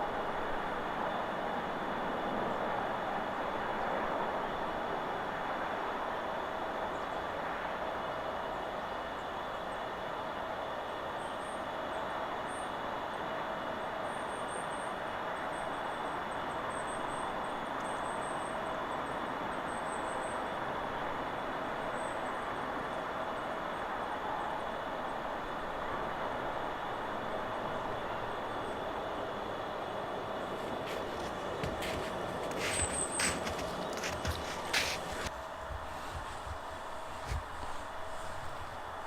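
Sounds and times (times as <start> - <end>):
wind rushing through trees: 25.6 - 39.0.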